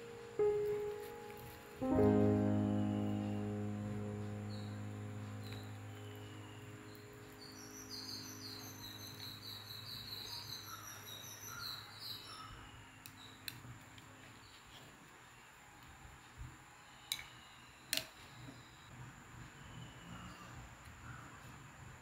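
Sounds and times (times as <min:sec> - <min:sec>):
piano music: 0:00.0 - 0:11.1
bird singing high chirps: 0:04.2 - 0:13.4.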